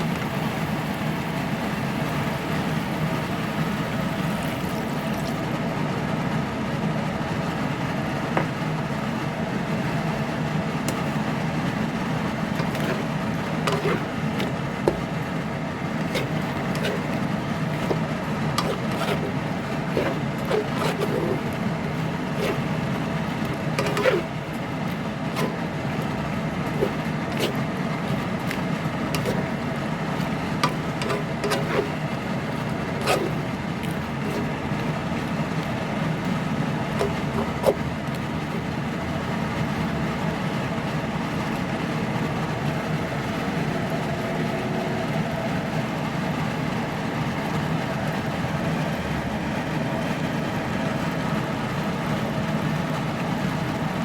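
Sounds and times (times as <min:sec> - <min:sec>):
steady mechanical hum: 0:00.0 - 0:54.0.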